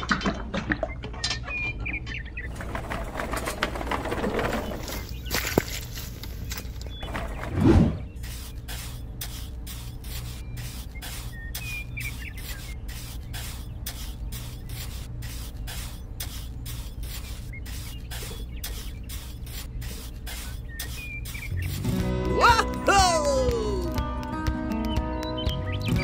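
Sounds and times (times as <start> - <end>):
trowel scraping wet cement: 7.0 - 22.0.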